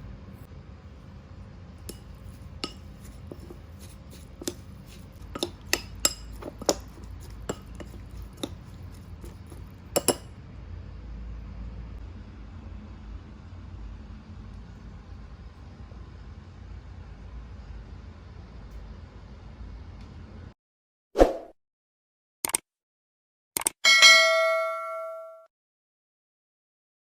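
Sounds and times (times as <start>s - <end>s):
utensils clinking against dishes: 1.9s - 10.2s.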